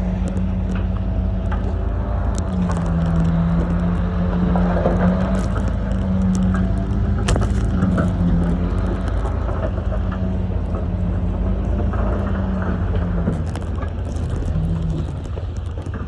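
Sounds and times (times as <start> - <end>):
clicks and knocks: 0.0 - 10.8
diesel machine engine droning: 0.0 - 16.0.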